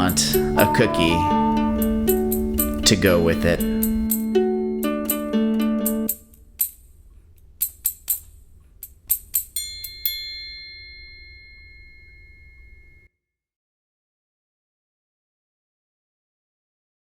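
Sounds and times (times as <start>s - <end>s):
high bell ringing: 3.1s - 4.8s, 9.6s - 13.1s.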